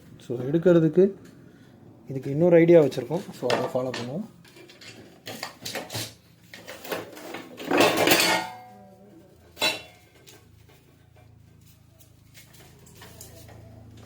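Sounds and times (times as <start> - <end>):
metal tools clinking and rattling: 3.4 - 8.7, 9.5 - 10.9.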